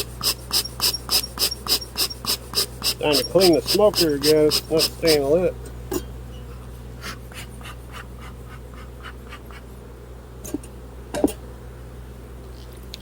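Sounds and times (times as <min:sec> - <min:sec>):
scratchy scraping strokes: 0:00.0 - 0:05.5.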